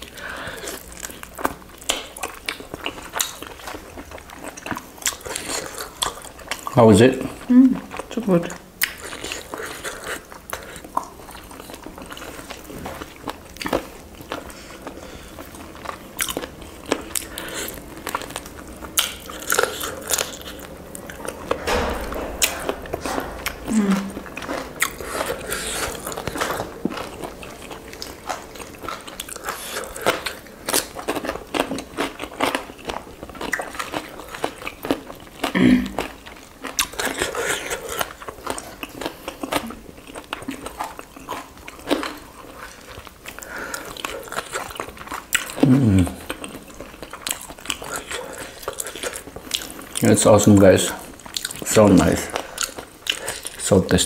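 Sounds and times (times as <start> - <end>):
people chewing and biting: 0.0 - 23.6, 24.3 - 54.0
crunching food: 24.4 - 54.0.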